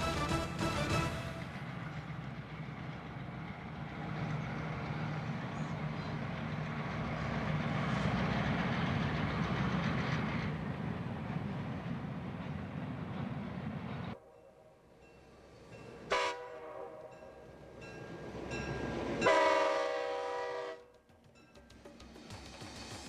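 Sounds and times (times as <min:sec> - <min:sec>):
background music: 0:00.0 - 0:01.6
train rumbling: 0:00.0 - 0:23.0.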